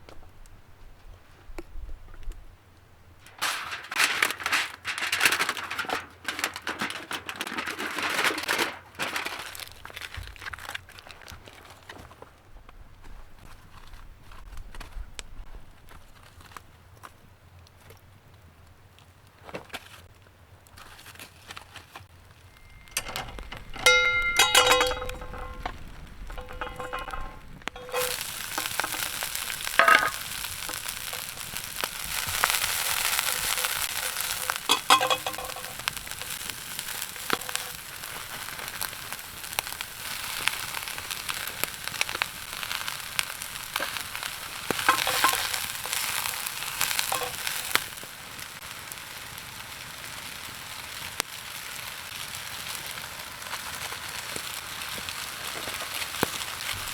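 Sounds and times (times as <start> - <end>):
metallic clinks of pan and utensils: 22.4 - 31.6, 32.4 - 36.4, 44.8 - 48.0
food sizzling in a hot pan: 27.7 - 56.9.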